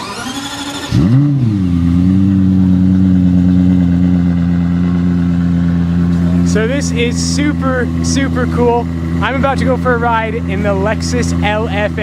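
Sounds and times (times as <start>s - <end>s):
car engine starting and idling: 0.0s - 12.0s.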